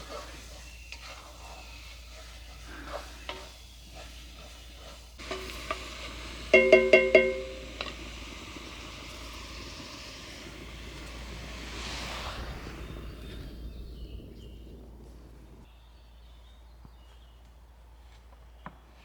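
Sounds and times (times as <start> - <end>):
faint steady hiss: 0.0 - 16.0
spoon clinking on ringing vessel: 6.5 - 7.8.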